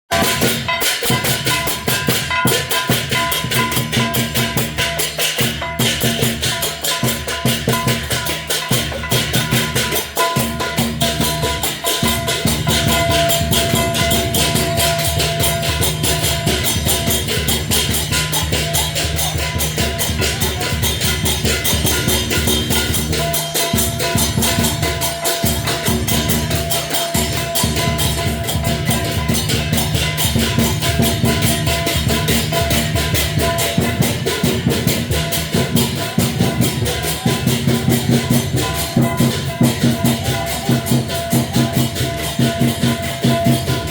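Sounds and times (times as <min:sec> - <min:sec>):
drum beating fast rhythm: 0:00.0 - 0:43.9
crashing cymbals: 0:00.1 - 0:43.9
steady ringing tones: 0:00.1 - 0:43.9.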